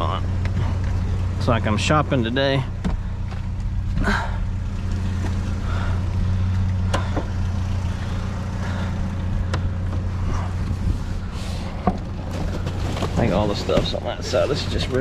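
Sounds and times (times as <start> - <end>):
engine idling: 0.0 - 15.0
items clicking and knocking in trash: 11.8 - 14.2.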